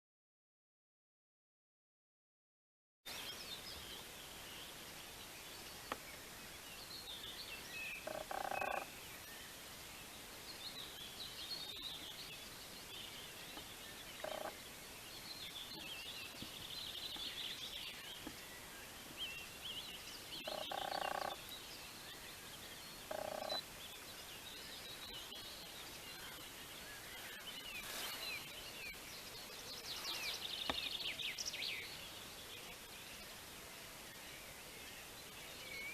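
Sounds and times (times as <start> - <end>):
songbirds chirping: 3.1 - 35.9
low croaking calls: 8.0 - 9.0, 13.5 - 14.7, 20.4 - 21.5, 23.0 - 23.7.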